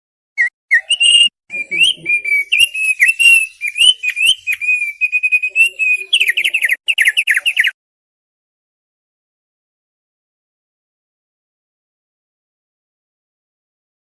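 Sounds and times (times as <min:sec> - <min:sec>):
bird singing whistled notes: 0:00.4 - 0:07.8.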